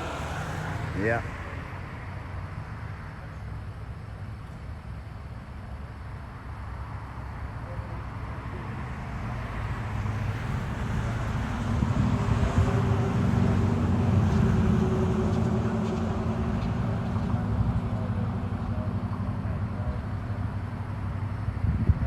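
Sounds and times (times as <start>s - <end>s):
vehicle engine running close by: 7.2s - 22.0s.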